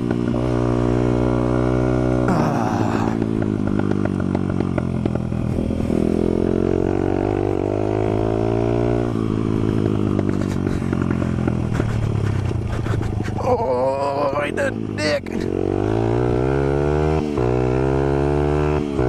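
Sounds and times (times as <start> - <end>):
dirt bike engine revving: 0.0 - 19.0
clatters and knocks over rough ground: 9.8 - 13.6.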